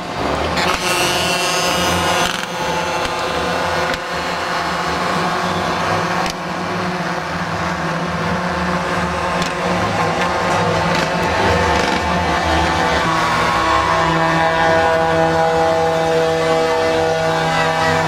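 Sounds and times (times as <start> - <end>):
heavy truck engines droning: 0.0 - 18.0.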